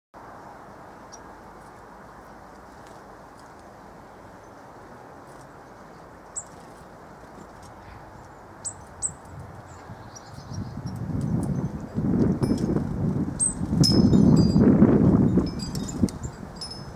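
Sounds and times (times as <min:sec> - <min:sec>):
small bird chirps: 0:05.3 - 0:06.8, 0:07.4 - 0:12.0.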